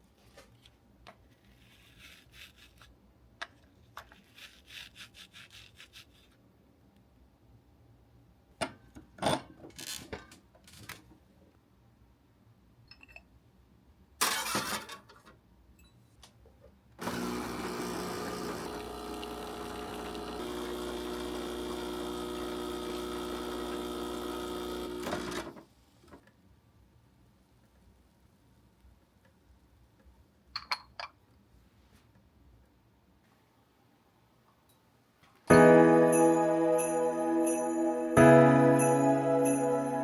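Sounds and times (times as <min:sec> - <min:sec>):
small electric motor running: 0:17.0 - 0:25.4.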